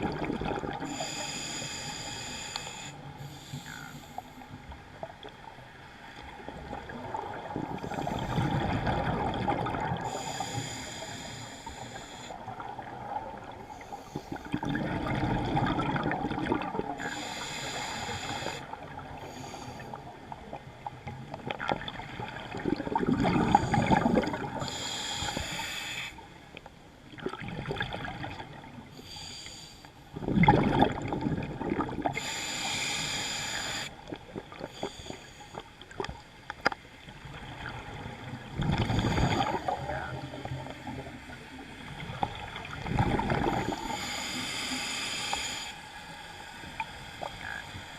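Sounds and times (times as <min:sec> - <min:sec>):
gurgle of exhaled bubbles: 0:00.0 - 0:01.0, 0:06.4 - 0:10.4, 0:14.4 - 0:17.1, 0:20.9 - 0:24.6, 0:27.1 - 0:28.8, 0:30.1 - 0:32.3, 0:37.4 - 0:44.0
regulator hissing inhalation: 0:00.9 - 0:04.2, 0:10.1 - 0:12.4, 0:17.0 - 0:18.7, 0:24.6 - 0:26.2, 0:32.2 - 0:33.9, 0:43.7 - 0:45.8.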